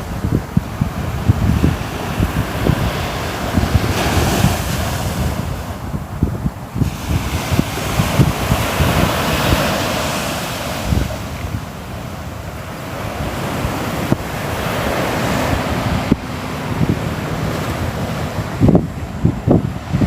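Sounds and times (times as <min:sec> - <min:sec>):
ocean waves breaking on shore: 0:00.0 - 0:20.0
wind rumble on microphone: 0:00.0 - 0:20.0.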